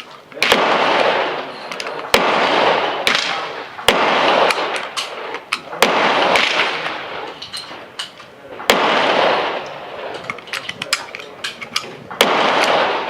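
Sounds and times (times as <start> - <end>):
echoing gunshots: 0.0 - 13.0.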